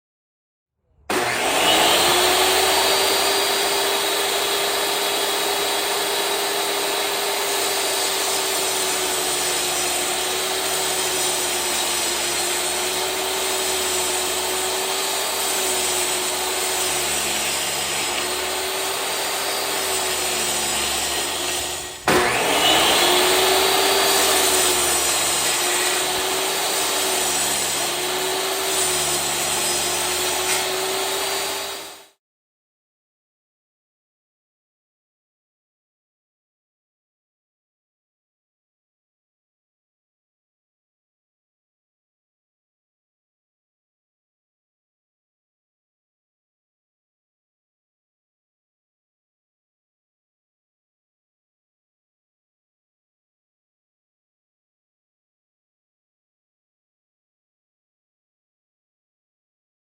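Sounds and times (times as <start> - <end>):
table saw cutting wood: 1.0 - 32.2.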